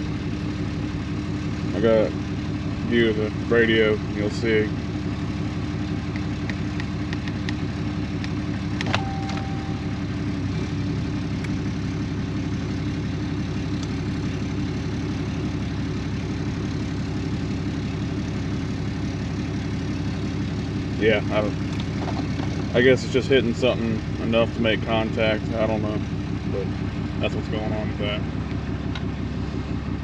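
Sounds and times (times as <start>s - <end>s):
pickup engine idling: 0.0s - 30.0s
short electronic beep: 8.9s - 10.1s.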